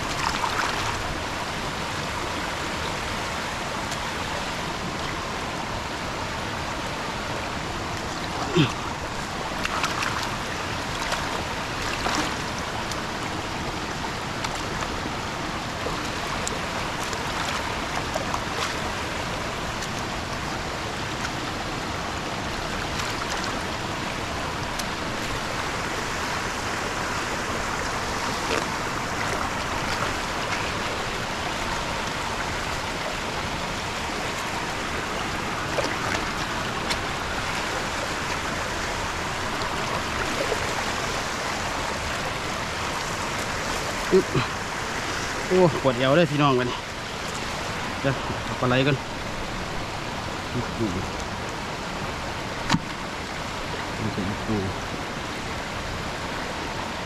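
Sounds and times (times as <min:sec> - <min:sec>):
flowing water: 0:00.0 - 0:57.0.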